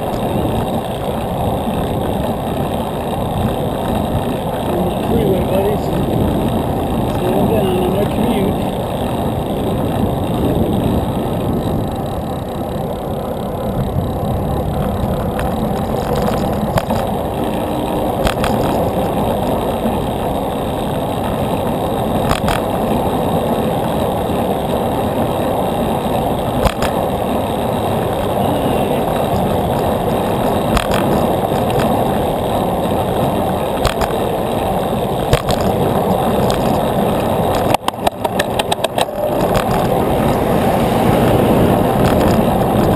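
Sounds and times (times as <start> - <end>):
bicycle road noise: 0.0 - 42.9
rushing wind: 0.0 - 42.9
sharp clicks: 26.6 - 27.0, 35.3 - 35.8, 37.5 - 40.8.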